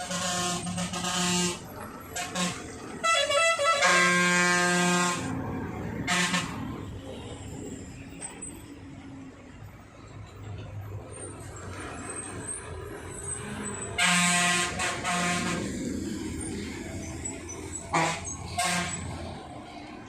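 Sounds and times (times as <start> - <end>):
truck horn honking: 0.0 - 7.1, 13.4 - 15.9, 17.5 - 19.4
truck engines running: 0.0 - 20.0.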